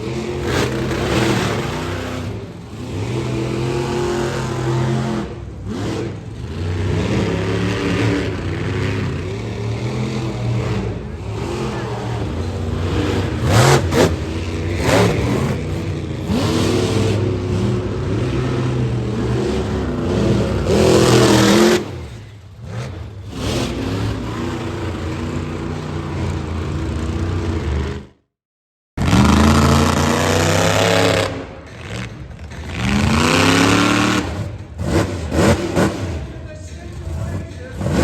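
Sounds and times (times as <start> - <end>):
monster truck engines revving: 0.0 - 28.3, 29.0 - 38.0.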